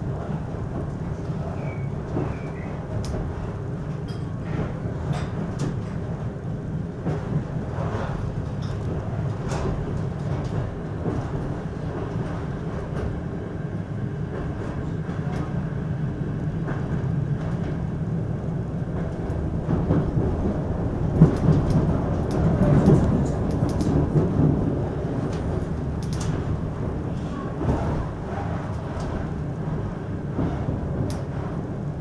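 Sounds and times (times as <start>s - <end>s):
train coach rumbling from inside: 0.0s - 32.0s
wheels clicking on rails: 18.9s - 32.0s.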